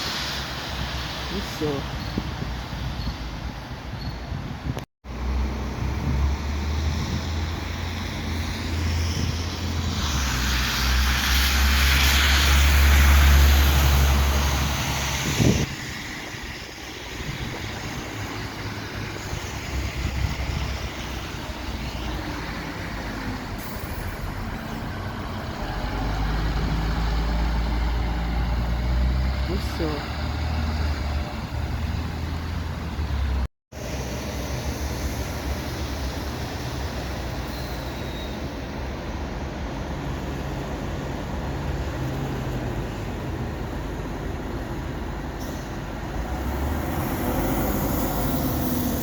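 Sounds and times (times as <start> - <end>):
diesel bus engine rumbling: 0.0 - 49.0
street traffic: 0.0 - 49.0
rushing hiss: 8.8 - 16.0.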